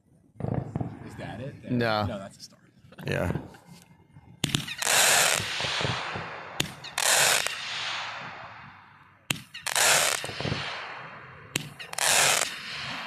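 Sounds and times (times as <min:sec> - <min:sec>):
fireworks exploding: 0:00.4 - 0:01.6, 0:04.3 - 0:13.0.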